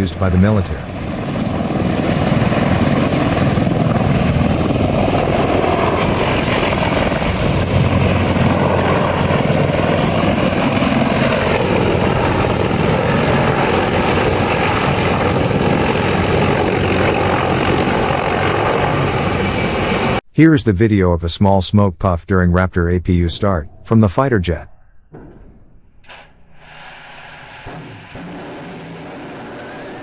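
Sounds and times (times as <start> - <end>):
helicopter rotor and turbines: 0.0 - 20.2, 27.6 - 30.0.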